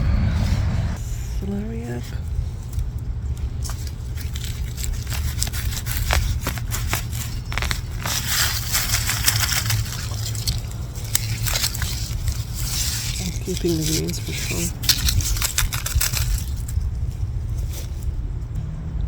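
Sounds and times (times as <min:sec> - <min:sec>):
steady low rumble: 0:00.0 - 0:19.0
leafy stalks rustling and snapping: 0:02.2 - 0:18.4.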